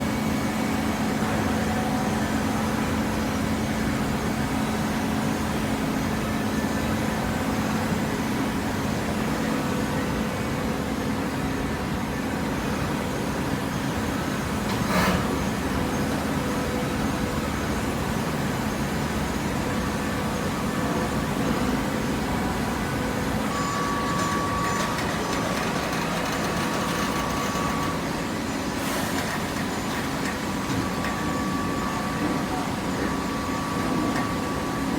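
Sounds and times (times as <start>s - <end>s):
hydraulic press motor hum: 14.5s - 17.8s, 18.5s - 34.9s.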